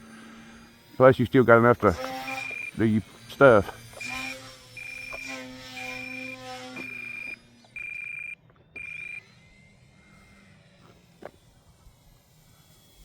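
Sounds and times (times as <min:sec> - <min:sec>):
low steady hum: 0:00.0 - 0:13.0
electronic alarm beeping: 0:02.2 - 0:03.0, 0:04.0 - 0:09.3.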